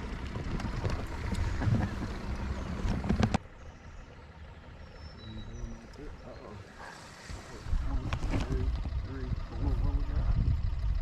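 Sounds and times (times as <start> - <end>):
wind buffeting microphone: 7.6 - 11.0.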